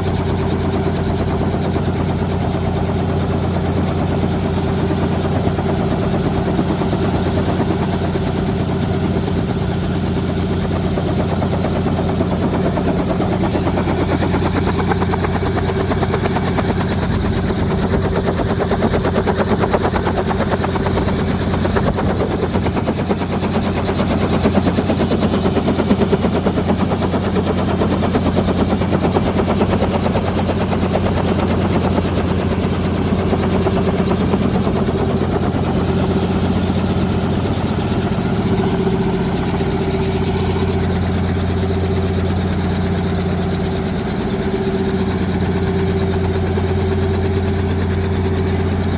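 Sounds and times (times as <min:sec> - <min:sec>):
helicopter engine hum: 0:00.0 - 0:48.9
helicopter rotor chopping: 0:00.0 - 0:48.9.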